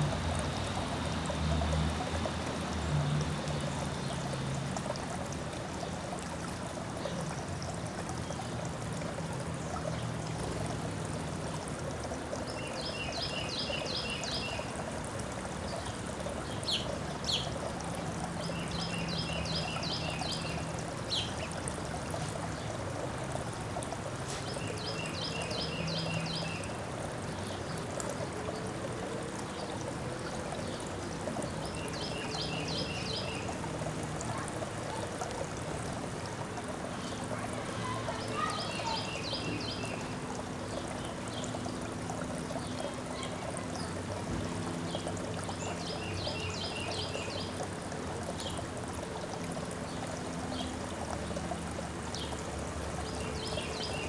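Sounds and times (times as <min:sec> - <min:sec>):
running water trickling: 0:00.0 - 0:54.0
songbird singing: 0:12.4 - 0:14.8, 0:15.6 - 0:22.8, 0:24.4 - 0:28.3, 0:30.5 - 0:33.6, 0:36.9 - 0:41.7, 0:44.8 - 0:47.7, 0:52.1 - 0:54.0.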